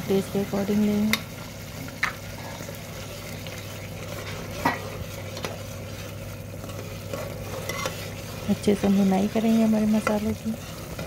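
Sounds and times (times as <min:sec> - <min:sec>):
spices sizzling in oil: 0:00.0 - 0:11.0
metal spoon scraping pot: 0:06.6 - 0:11.0.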